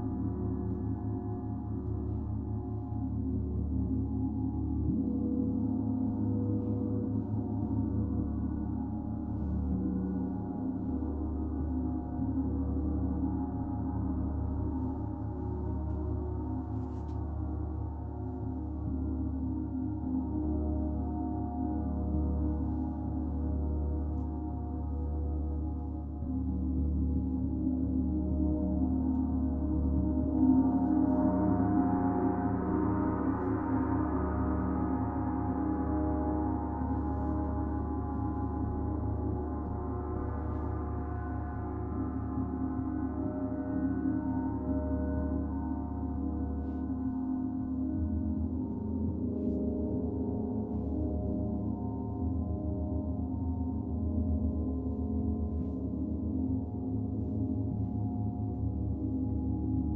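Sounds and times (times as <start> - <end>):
gong sustained wash: 24.9 - 59.9.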